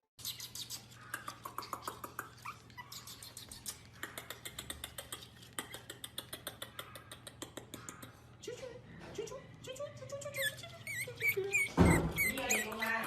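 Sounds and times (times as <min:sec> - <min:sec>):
puppy whining: 0:00.2 - 0:04.1, 0:10.2 - 0:13.0.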